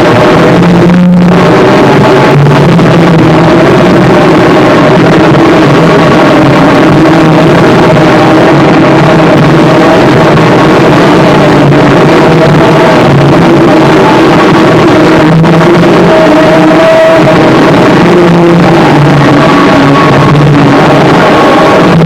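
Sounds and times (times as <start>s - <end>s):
harsh distorted noise music: 0.0s - 22.0s.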